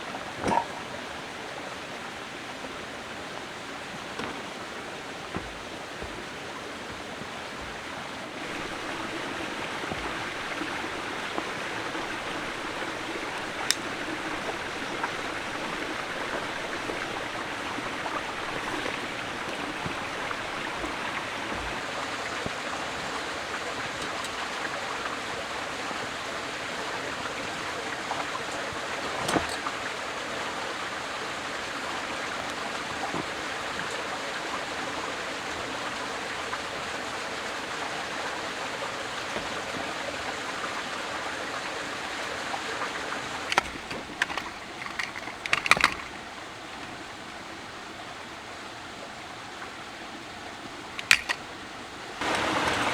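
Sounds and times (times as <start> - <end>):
water rushing: 0.0 - 52.9
sharp clicks: 51.0 - 51.4.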